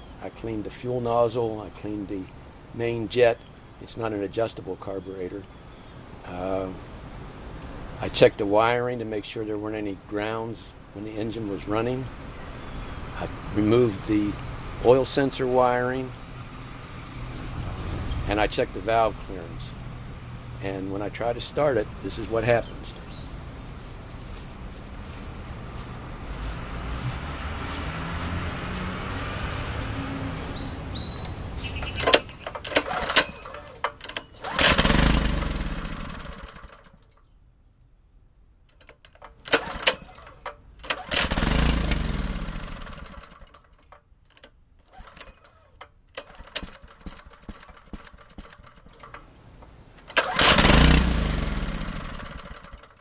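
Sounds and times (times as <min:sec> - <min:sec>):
engine firing and dying: 0:26.5 - 0:37.0, 0:39.5 - 0:43.6, 0:50.1 - 0:53.0
pull-start rattles and clicks: 0:31.2 - 0:37.3, 0:38.7 - 0:53.0.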